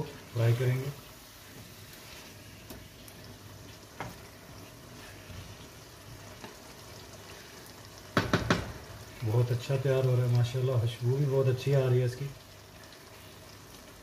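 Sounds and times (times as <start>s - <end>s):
wooden spatula stirring: 0.0s - 10.6s
food sizzling in oil: 0.0s - 14.0s
spatula tapping pot: 8.2s - 8.8s.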